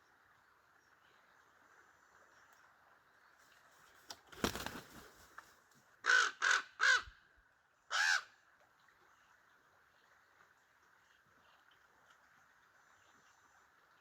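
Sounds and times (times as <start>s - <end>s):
raven harsh caws: 6.0s - 7.1s, 7.9s - 8.4s.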